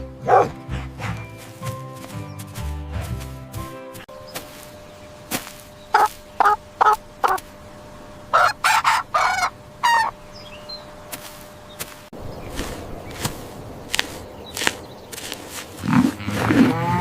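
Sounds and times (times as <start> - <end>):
chicken clucking: 5.9 - 7.4, 8.3 - 10.2
chicken squawking: 5.9 - 7.4, 8.3 - 10.2.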